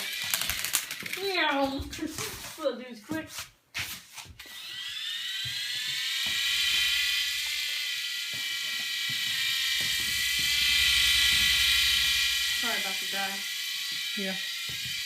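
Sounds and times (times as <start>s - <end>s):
rotor flutter: 0.0s - 1.4s, 4.4s - 15.0s
toy helicopter motor whine: 0.0s - 2.2s, 4.4s - 15.0s.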